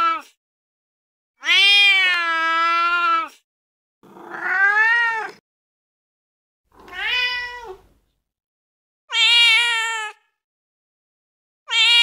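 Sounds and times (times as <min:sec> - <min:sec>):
cat meowing: 0:01.4 - 0:03.3, 0:04.1 - 0:05.4, 0:06.8 - 0:07.9, 0:09.1 - 0:10.3, 0:11.7 - 0:12.0.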